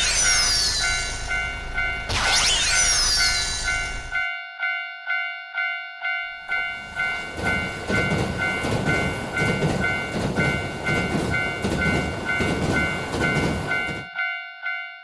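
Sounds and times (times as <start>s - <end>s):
crossing warning bell ringing: 0.0s - 15.0s
train rumble and wheel clatter: 6.4s - 14.2s.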